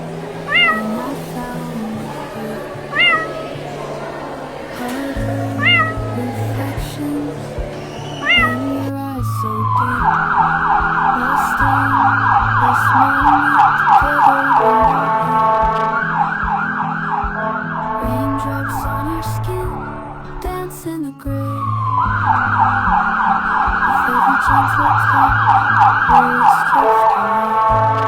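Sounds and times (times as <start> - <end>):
background music: 0.0 - 28.0
cat meowing: 0.5 - 3.8, 5.5 - 6.3, 8.2 - 8.9
siren yelping: 8.2 - 8.8.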